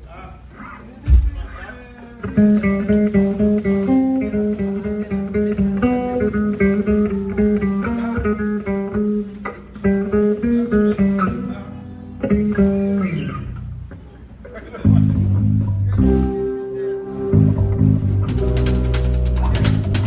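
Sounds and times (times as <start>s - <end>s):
guitar picked riff: 2.2s - 14.0s, 14.8s - 20.0s.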